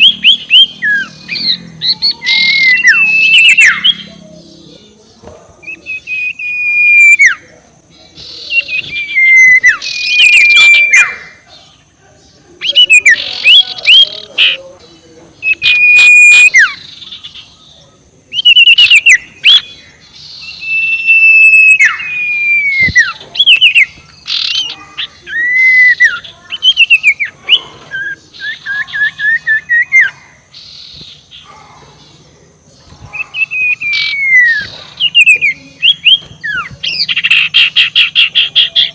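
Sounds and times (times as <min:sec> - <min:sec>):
owl rapid chattering: 0:00.0 - 0:04.1, 0:12.6 - 0:14.8, 0:15.4 - 0:17.6, 0:18.3 - 0:31.7, 0:32.9 - 0:38.9
owl whistled calls: 0:00.0 - 0:04.2, 0:05.6 - 0:07.6, 0:08.2 - 0:11.4, 0:12.6 - 0:14.7, 0:15.4 - 0:17.4, 0:18.3 - 0:31.4, 0:33.1 - 0:38.9.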